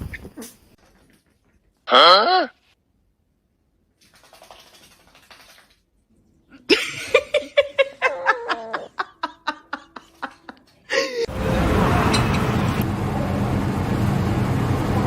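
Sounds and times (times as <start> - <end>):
person laughing: 6.7 - 11.3
loud steady noise: 11.3 - 15.0.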